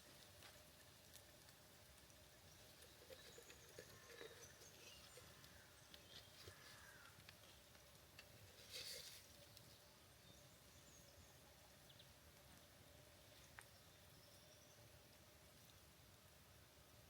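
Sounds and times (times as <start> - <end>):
small ticks: 0.0 - 9.7
faint steady hum: 0.0 - 17.0.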